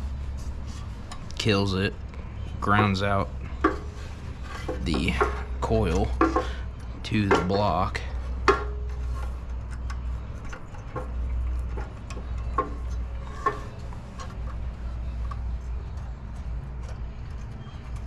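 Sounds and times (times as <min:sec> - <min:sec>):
steady low hum: 0:00.0 - 0:18.0
clicks of engine parts handled: 0:03.6 - 0:07.6, 0:08.3 - 0:18.0.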